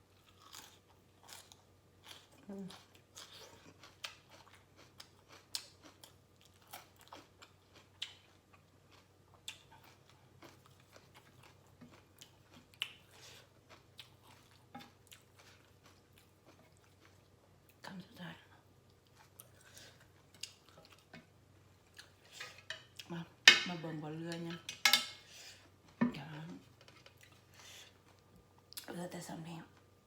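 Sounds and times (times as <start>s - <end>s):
person chewing crunchy food: 0.1s - 17.8s, 18.8s - 23.2s.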